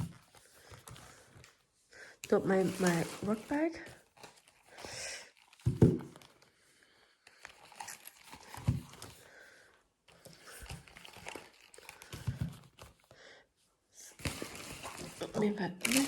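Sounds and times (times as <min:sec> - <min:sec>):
plastic packaging crinkling: 0:02.2 - 0:06.5, 0:07.3 - 0:09.2, 0:10.2 - 0:13.0, 0:14.2 - 0:16.0.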